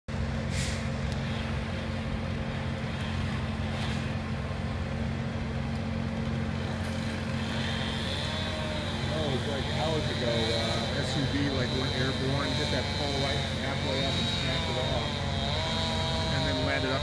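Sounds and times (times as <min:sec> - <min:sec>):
vehicle engine idling: 0:00.1 - 0:17.0
faint short hisses: 0:00.5 - 0:00.9.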